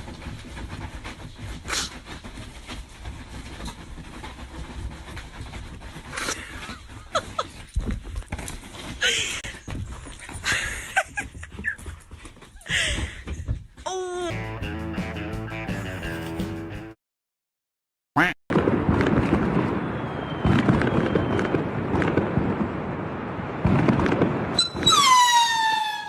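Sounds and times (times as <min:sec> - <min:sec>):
animal breathing in puffs: 0:00.2 - 0:11.0
short high squeaks: 0:24.6 - 0:26.0.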